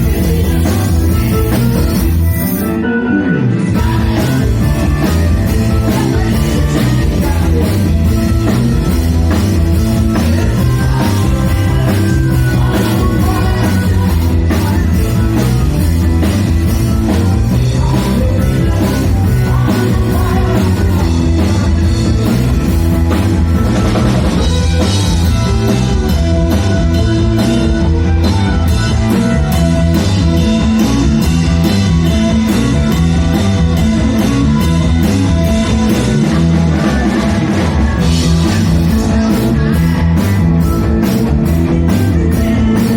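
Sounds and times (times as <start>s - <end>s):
drum kit beat: 0.0s - 2.7s, 3.8s - 42.9s
person singing: 0.0s - 3.0s, 3.7s - 8.7s, 9.7s - 21.8s
electric guitars: 0.0s - 42.9s.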